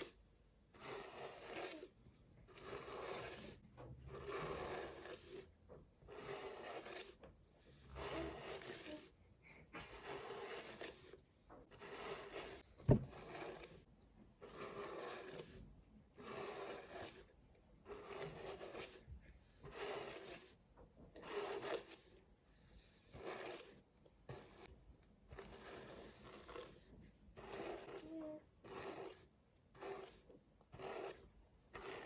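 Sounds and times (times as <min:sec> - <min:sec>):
hairbrush brushing through hair: 0:00.8 - 0:03.6, 0:06.1 - 0:07.2, 0:07.9 - 0:09.2, 0:09.8 - 0:13.9.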